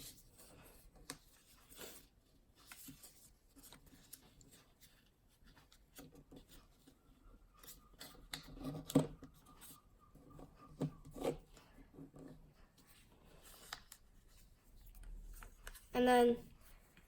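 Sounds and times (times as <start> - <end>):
paper being folded and creased: 0.0 - 9.7, 12.8 - 16.0.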